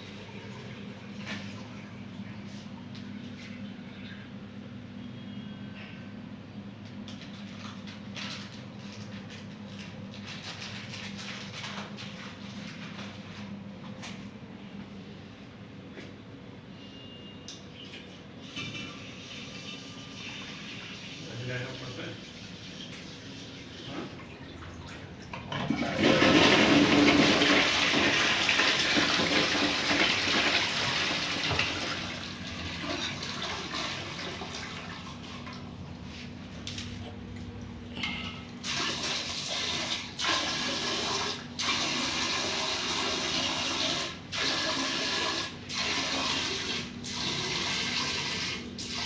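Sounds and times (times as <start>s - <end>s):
toilet flushing: 0.0s - 4.0s, 18.3s - 36.2s, 38.5s - 49.0s
water running: 18.9s - 37.7s, 38.4s - 49.0s.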